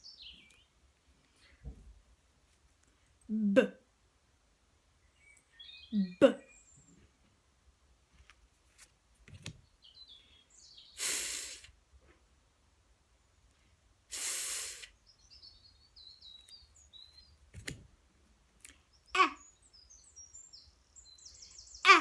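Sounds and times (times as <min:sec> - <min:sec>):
faint birds chirping: 0:00.0 - 0:22.0
woman saying phonics sounds: 0:03.3 - 0:03.8, 0:06.0 - 0:06.4, 0:19.2 - 0:19.4.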